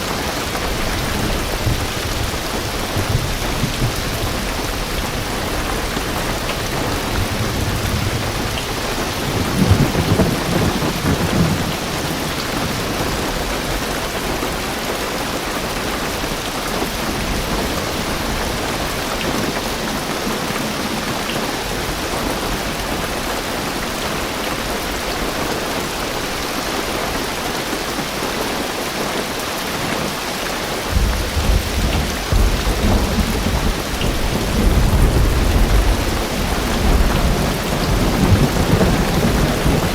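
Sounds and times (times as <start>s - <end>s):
heavy rain on a car roof: 0.0s - 39.9s
thunder rumble: 0.1s - 13.6s, 30.9s - 39.9s.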